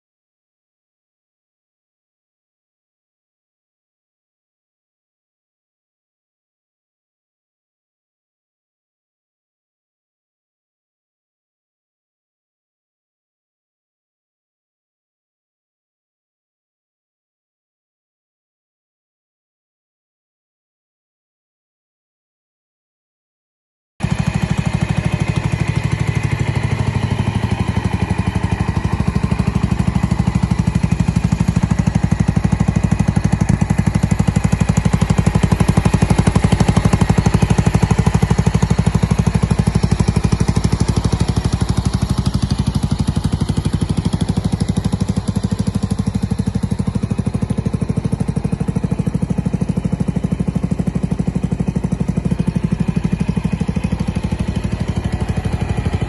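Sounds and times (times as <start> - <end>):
scooter engine running: 24.0 - 56.0.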